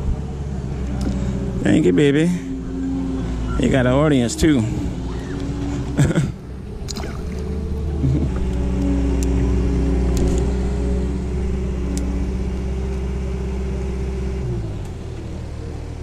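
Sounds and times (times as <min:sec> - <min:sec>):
motor engine running: 0:00.0 - 0:16.0.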